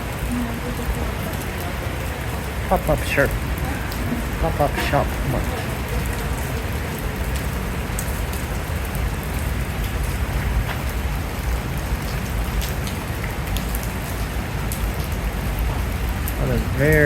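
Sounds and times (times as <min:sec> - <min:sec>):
raindrop ticks: 0:00.0 - 0:17.0
steady rain hissing: 0:00.0 - 0:17.0.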